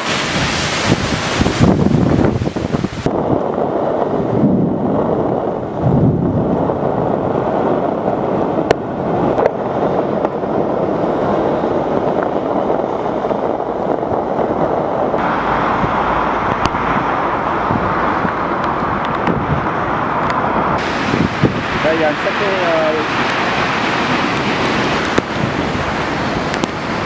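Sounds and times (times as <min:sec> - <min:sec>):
strong wind buffeting microphone: 0:00.0 - 0:27.0.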